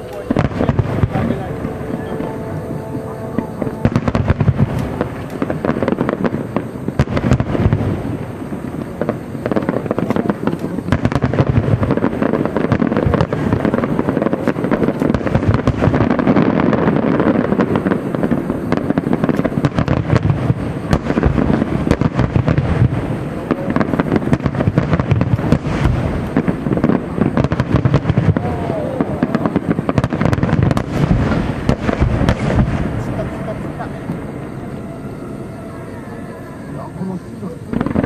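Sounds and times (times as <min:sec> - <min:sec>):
fireworks bursting and crackling: 0:00.0 - 0:38.0.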